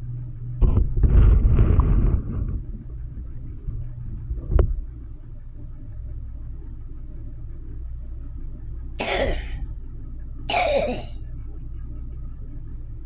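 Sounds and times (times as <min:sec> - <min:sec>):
person coughing: 0:09.0 - 0:09.6, 0:10.5 - 0:11.2.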